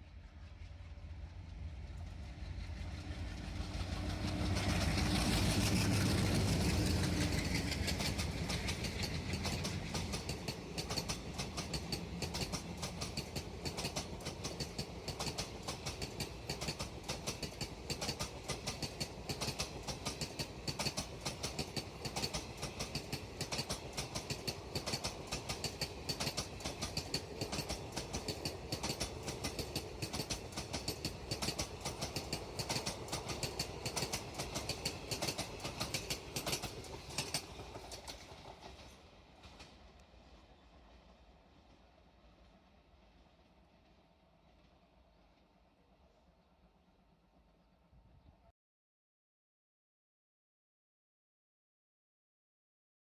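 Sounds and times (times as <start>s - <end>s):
diesel locomotive engine rumble: 0.0s - 39.6s
train wheels clicking over rail joints: 2.6s - 39.9s.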